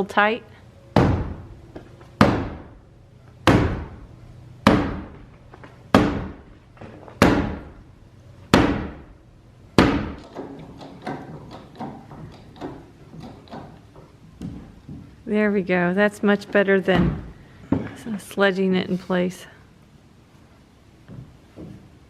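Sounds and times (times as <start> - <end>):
sledgehammer striking timber: 1.0 - 1.5, 2.2 - 2.8, 3.4 - 4.0, 4.6 - 5.2, 5.9 - 6.6, 7.2 - 7.8, 8.5 - 9.2, 9.8 - 12.0.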